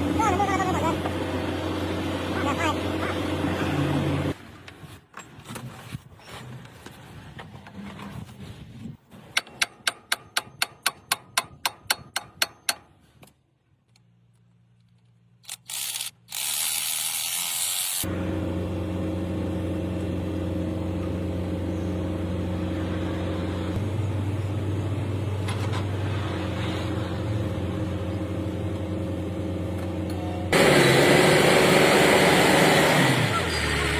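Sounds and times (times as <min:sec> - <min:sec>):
heavy machine engine running: 0:18.1 - 0:33.9.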